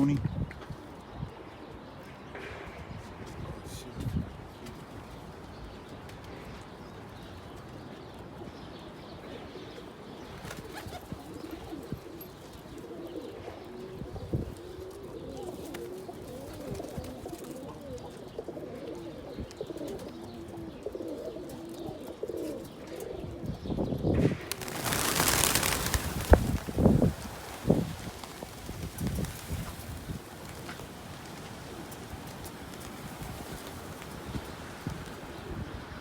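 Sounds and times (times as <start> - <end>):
pigeons cooing: 9.2 - 36.0.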